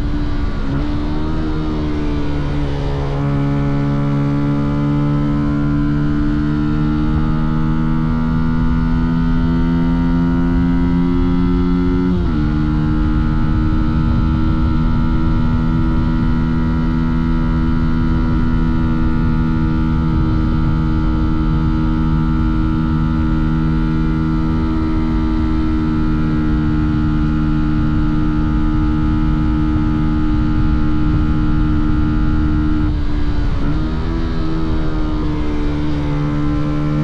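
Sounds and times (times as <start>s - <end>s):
motorcycle engine at steady revs: 0.0s - 37.0s.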